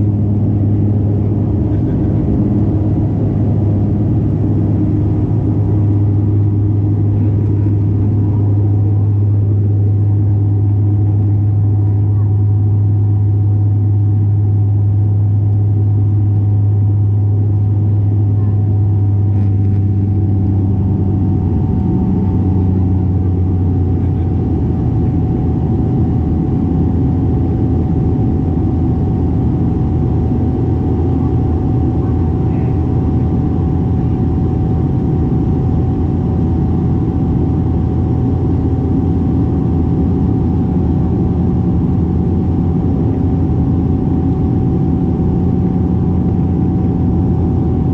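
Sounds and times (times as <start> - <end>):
turboprop engines droning: 0.0 - 47.9
thin steady whine: 14.2 - 47.9.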